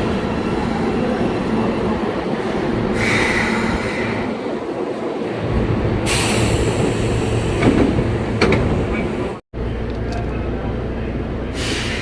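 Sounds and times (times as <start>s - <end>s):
subway wheels rumbling on rail: 0.0s - 12.0s.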